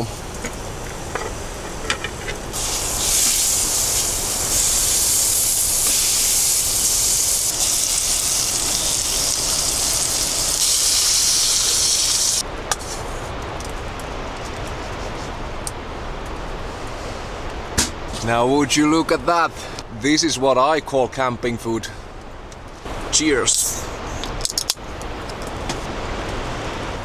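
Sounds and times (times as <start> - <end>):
food sizzling in a pan: 2.5 - 12.4.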